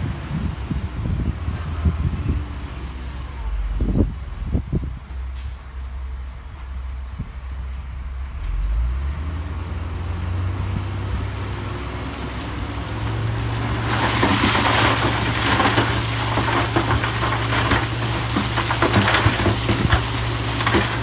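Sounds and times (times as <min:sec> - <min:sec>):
heavy diesel engine running: 0:00.0 - 0:21.0
clatter of stone and rock: 0:13.5 - 0:21.0.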